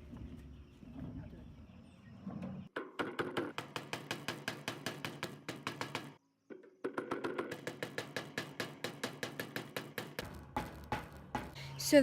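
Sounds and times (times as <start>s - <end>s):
hand hammer striking: 6.9s - 11.6s.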